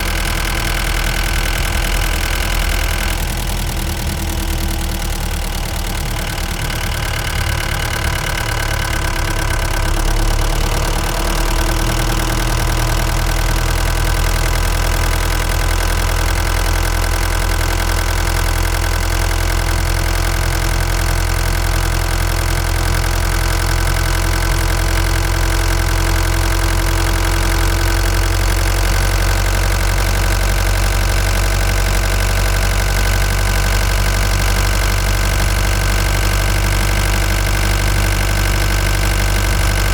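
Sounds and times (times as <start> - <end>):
van engine running: 0.0 - 39.9.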